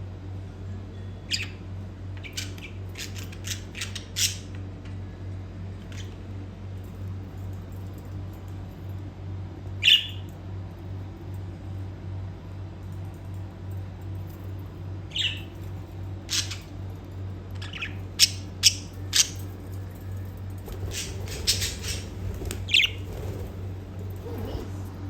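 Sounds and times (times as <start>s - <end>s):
steady low hum: 0.0s - 25.0s
budgies chirping and squawking: 20.8s - 23.4s.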